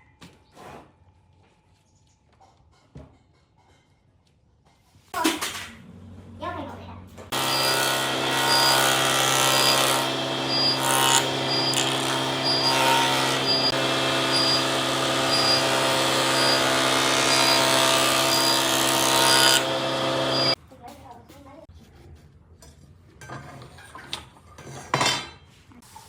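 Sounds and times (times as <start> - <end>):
electric woodworking tool running: 7.3 - 20.6.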